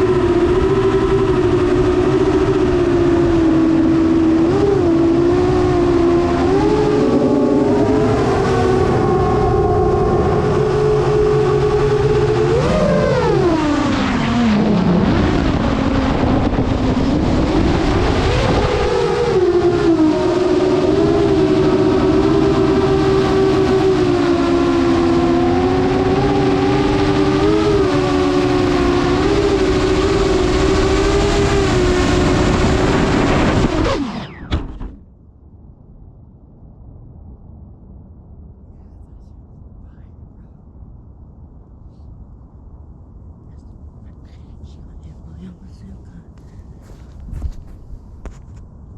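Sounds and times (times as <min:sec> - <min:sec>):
model airplane motor whine: 0:00.0 - 0:35.0.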